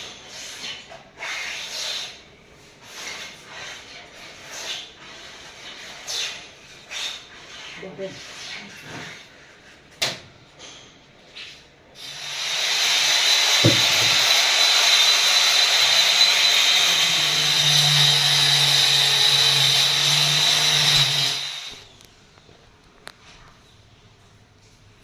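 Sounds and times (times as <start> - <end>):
power tool whining: 12.0 - 22.0.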